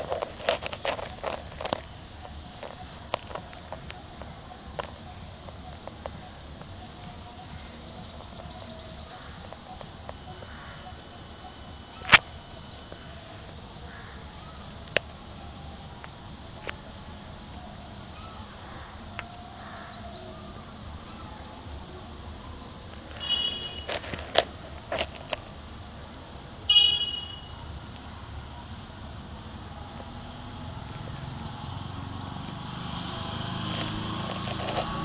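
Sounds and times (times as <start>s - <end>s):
bird chirping: 5.0s - 11.5s, 22.5s - 23.9s, 26.2s - 28.3s, 30.5s - 34.2s
squeaky bird calls: 26.7s - 27.6s.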